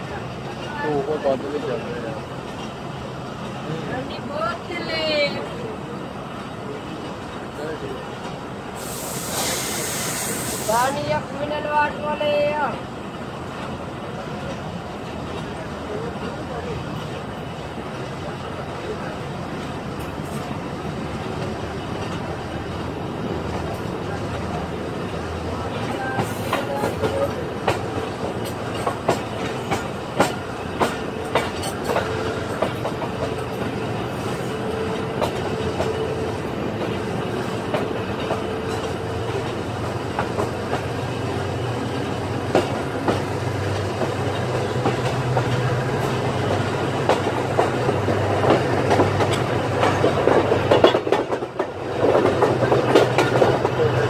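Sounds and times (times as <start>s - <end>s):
train running rumble: 0.0s - 54.0s
wheels clicking over rail joints: 19.5s - 54.0s.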